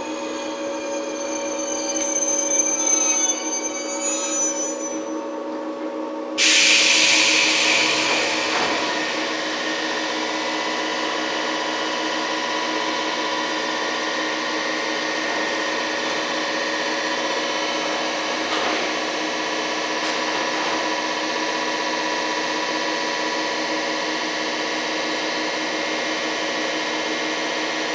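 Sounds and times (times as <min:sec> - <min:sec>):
train equipment hum: 0:00.0 - 0:06.2.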